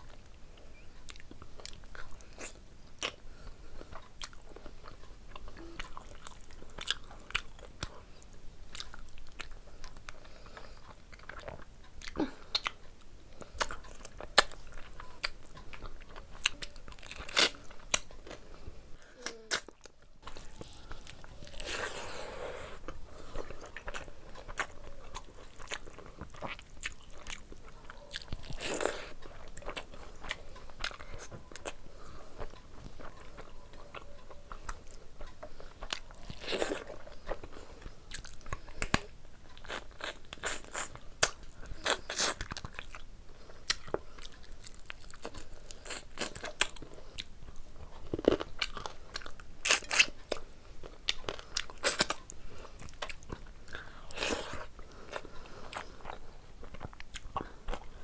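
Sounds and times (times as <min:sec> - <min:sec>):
wet chewing and crunching: 0:00.0 - 0:18.6, 0:19.2 - 0:58.0.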